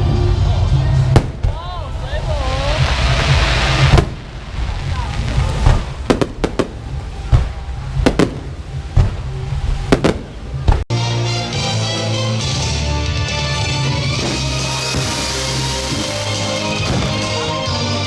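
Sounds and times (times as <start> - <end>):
fireworks bangs: 2.3 - 10.8, 14.1 - 17.9
rock music with drums: 10.9 - 18.0.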